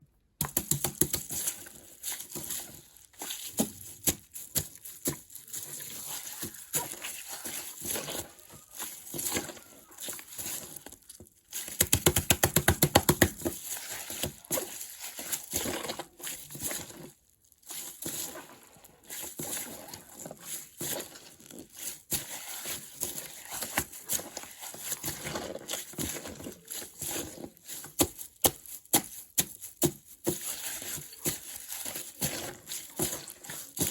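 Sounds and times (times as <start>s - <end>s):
plastic bag crinkling: 0.4s - 33.9s.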